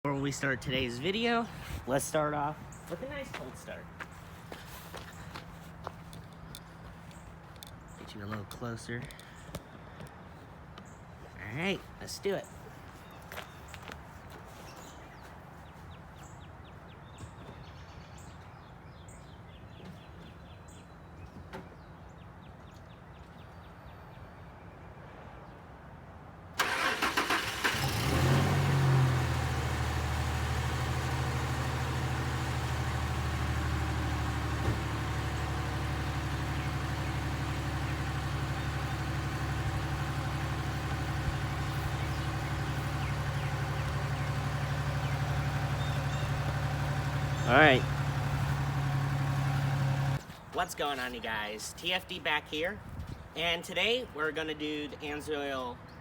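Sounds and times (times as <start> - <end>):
engine cranking and starting: 26.6 - 32.4
engine idling rough: 26.6 - 50.2.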